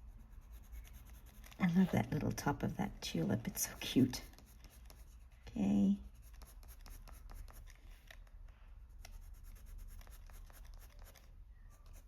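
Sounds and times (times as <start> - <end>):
pencil scratching on paper: 0.0 - 8.2, 9.0 - 12.0.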